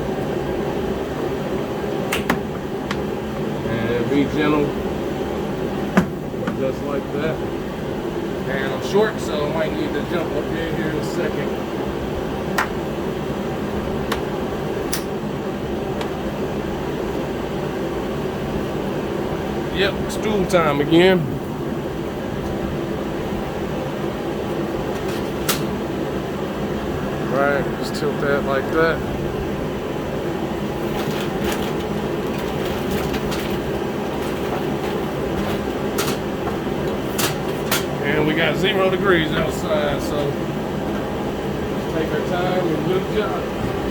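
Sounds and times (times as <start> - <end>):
heater fan running: 0.0 - 43.9.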